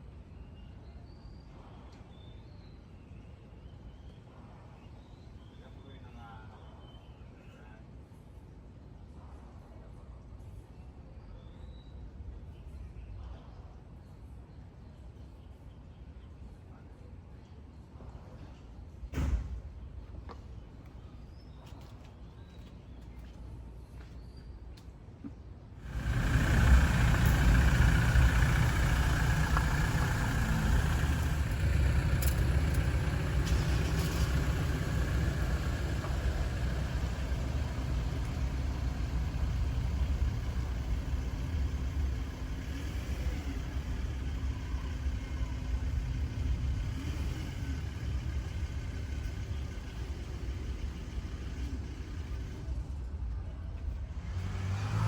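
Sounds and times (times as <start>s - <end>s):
car engine starting and idling: 25.8s - 55.0s.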